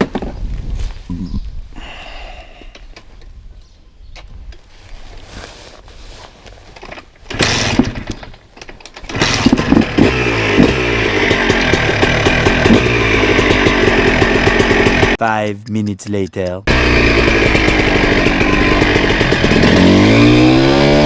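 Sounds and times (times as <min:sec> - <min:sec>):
two-stroke motorcycle engine revving: 0:07.3 - 0:08.2, 0:09.0 - 0:15.2, 0:16.7 - 0:21.0.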